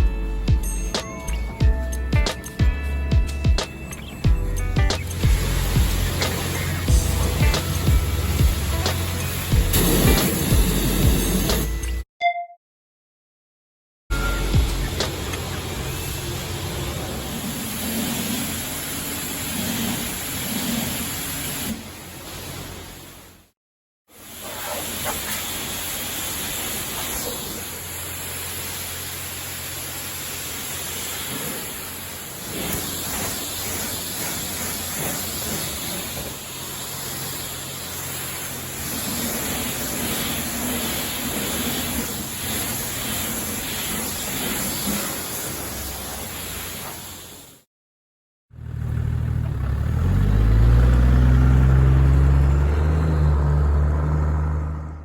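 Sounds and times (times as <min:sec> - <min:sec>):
road and engine noise: 0:00.0 - 0:12.0, 0:14.1 - 0:23.5, 0:24.1 - 0:47.6, 0:48.5 - 0:55.0
engine revving: 0:04.4 - 0:11.8, 0:48.5 - 0:55.0.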